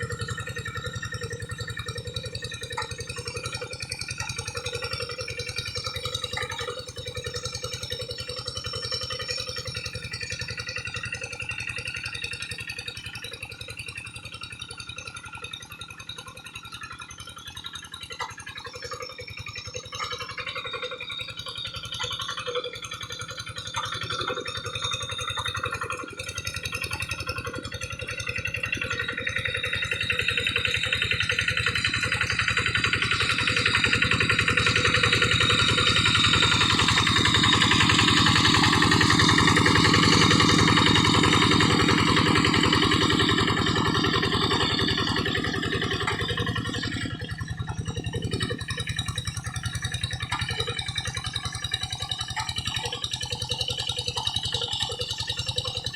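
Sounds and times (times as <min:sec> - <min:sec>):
hand tractor engine running: 0:00.0 - 0:15.5, 0:16.4 - 0:55.9
harrow dragging through mud: 0:32.0 - 0:47.7.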